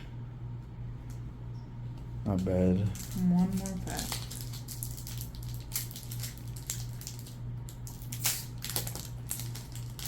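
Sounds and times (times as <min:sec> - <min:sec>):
foil wrapper crinkling: 0:02.4 - 0:10.0.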